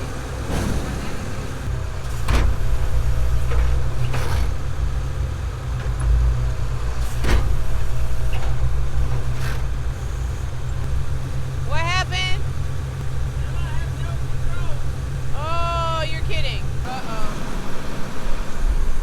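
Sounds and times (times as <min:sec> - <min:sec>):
metal clanks: 0:00.0 - 0:11.4
diesel farm machinery rumbling: 0:00.0 - 0:19.0.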